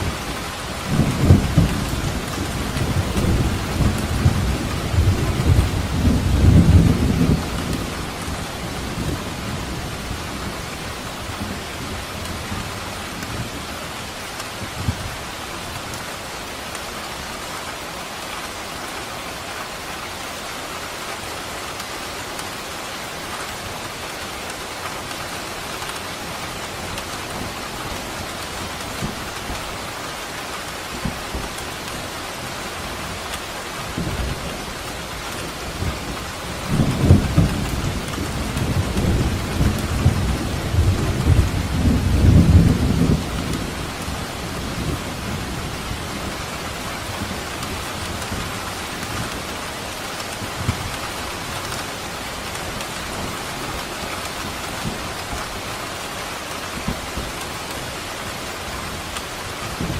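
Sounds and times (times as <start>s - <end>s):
thunder rumbling: 0.0s - 12.7s, 33.9s - 55.8s
rain falling: 0.0s - 59.9s.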